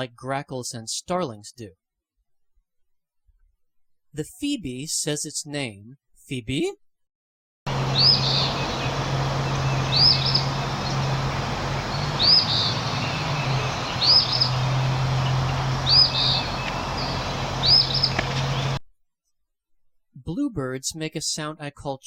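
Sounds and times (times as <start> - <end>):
steady low hum: 7.7 - 18.8.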